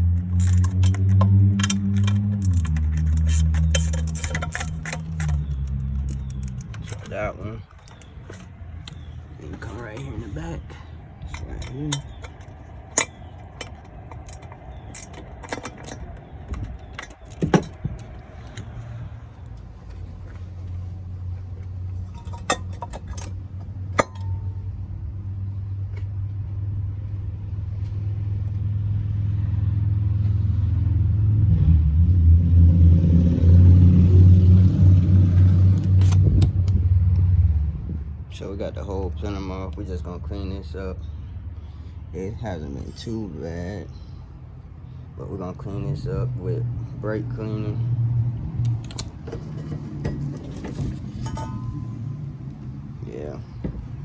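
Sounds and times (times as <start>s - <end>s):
metal tools clinking: 0.0s - 24.6s, 35.4s - 36.5s, 48.6s - 54.0s
low vehicle engine rumble: 0.0s - 54.0s.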